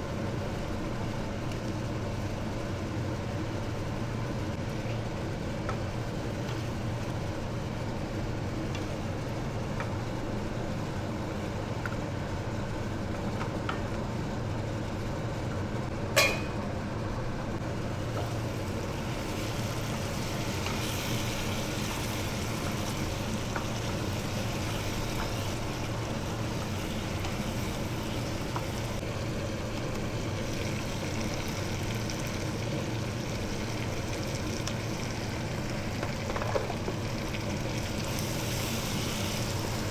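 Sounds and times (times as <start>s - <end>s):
chicken frying in a pan: 0.0s - 15.2s, 17.7s - 39.9s
sharp clink: 16.2s - 16.6s.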